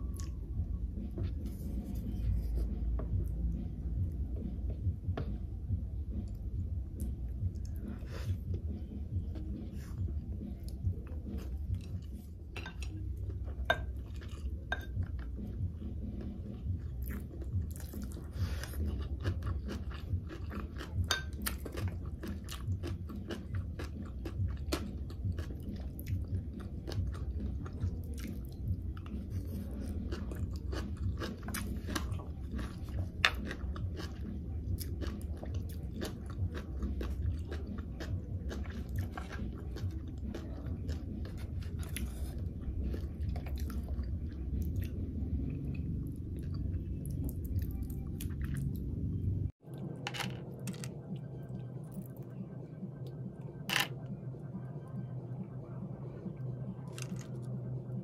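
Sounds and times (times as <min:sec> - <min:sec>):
close chewing with crisp pops: 0:16.2 - 0:48.9.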